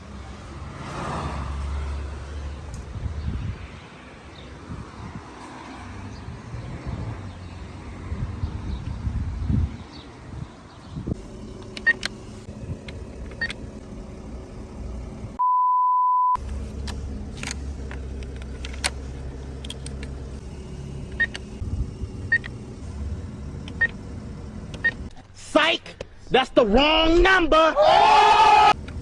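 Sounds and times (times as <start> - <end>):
low car rumble: 10.8 - 15.4, 16.4 - 25.1, 28.7 - 29.0
small clicks: 11.2 - 15.4, 16.4 - 25.1, 28.7 - 29.0
censor beep tone: 15.4 - 16.4.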